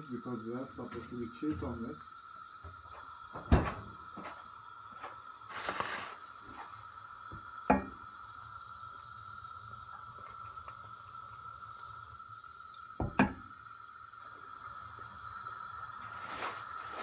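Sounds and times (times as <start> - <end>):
kitchen rustle: 5.5 - 6.7, 16.0 - 17.0
knock: 13.0 - 13.4.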